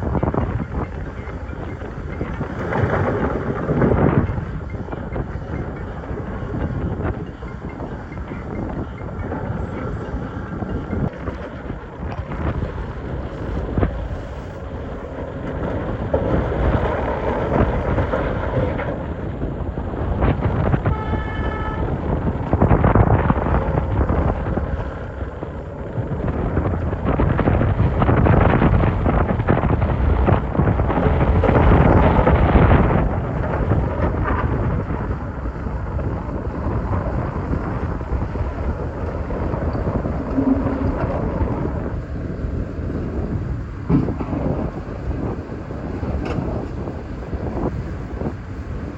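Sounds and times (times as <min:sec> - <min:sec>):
excavator engine under load: 0:00.0 - 0:48.9
high whine: 0:00.0 - 0:48.9
bucket scraping rock: 0:39.7 - 0:41.8.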